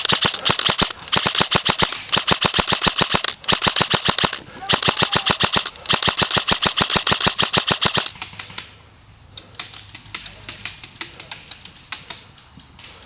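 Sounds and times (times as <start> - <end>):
airsoft rifle full auto fire: 0.0 - 8.2
faint scattered airsoft shots: 0.0 - 8.6.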